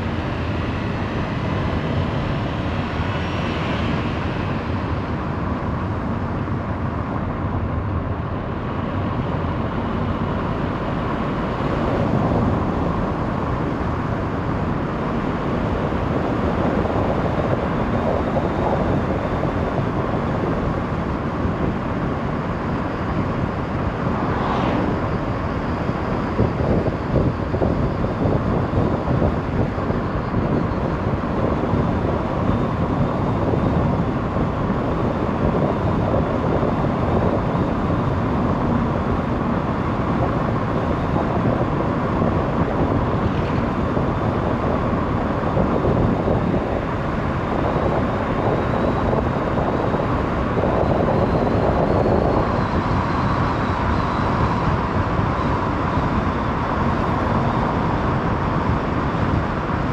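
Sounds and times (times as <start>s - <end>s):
engine hum: 0.0s - 59.9s
tyre and road noise: 21.4s - 29.6s.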